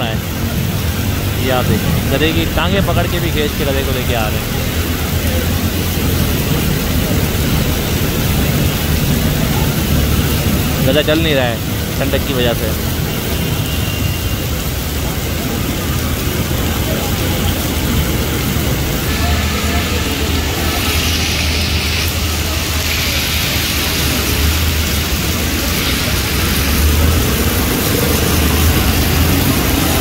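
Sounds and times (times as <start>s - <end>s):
heavy rain pouring: 0.0s - 30.0s
traffic driving through water: 0.0s - 30.0s.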